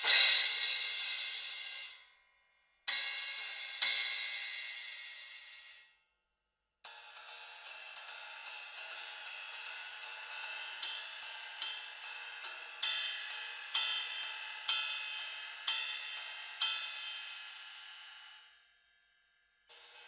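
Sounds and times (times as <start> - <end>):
cymbal struck with stick: 0.0 - 2.1, 2.9 - 5.7.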